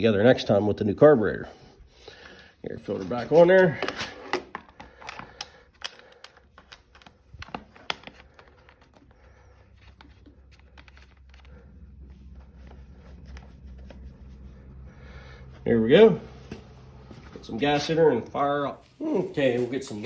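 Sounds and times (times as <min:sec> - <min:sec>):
plastic parts clicking and tapping: 0:03.8 - 0:09.2
faint low hum: 0:04.9 - 0:20.0.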